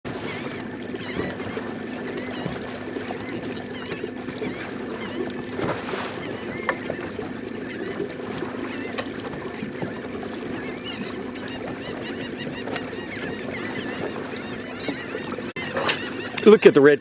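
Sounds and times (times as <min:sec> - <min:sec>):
boat motor humming: 0:00.0 - 0:17.0
flock of birds calling: 0:10.6 - 0:16.7.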